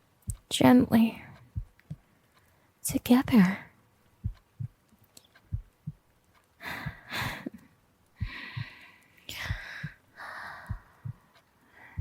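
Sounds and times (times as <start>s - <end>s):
heartbeat thumps: 1.4s - 2.1s, 4.2s - 4.8s, 5.5s - 7.5s, 8.2s - 12.0s.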